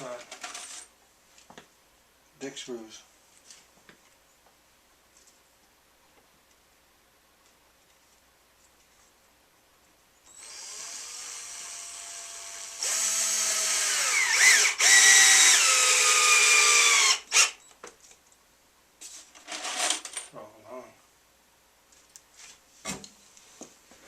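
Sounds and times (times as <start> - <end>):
power drill driving screws: 10.3 - 17.6
drill clicks: 12.6 - 17.6.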